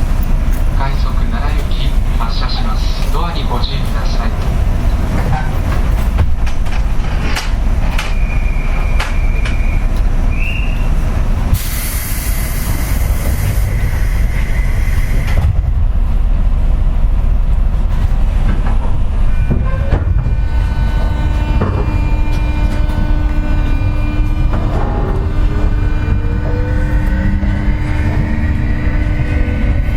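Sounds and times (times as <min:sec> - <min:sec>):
train low rumble: 0:00.0 - 0:29.9
loud air hiss: 0:11.5 - 0:15.4
traction motor whining: 0:19.3 - 0:29.9.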